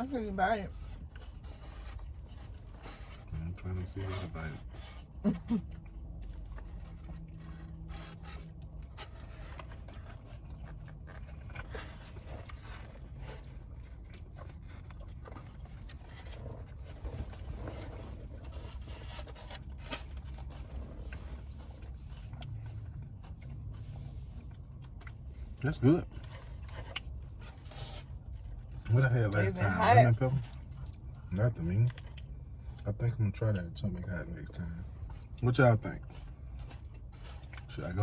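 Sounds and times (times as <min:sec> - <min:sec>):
person chewing: 0:00.8 - 0:32.8, 0:36.0 - 0:37.9.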